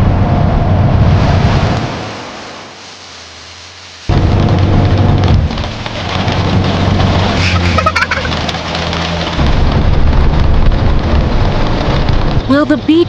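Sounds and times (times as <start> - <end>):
rain falling: 1.7 - 13.0
car engine running: 4.1 - 13.0.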